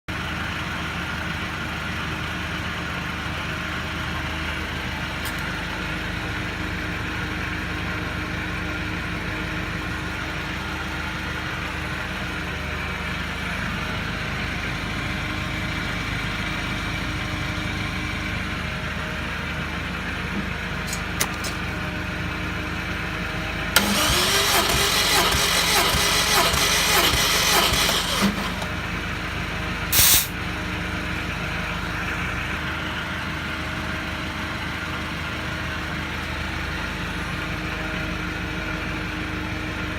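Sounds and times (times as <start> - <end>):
steady mechanical hum: 15.2 - 35.3
car engine cranking on starter: 23.7 - 29.0, 29.9 - 30.3.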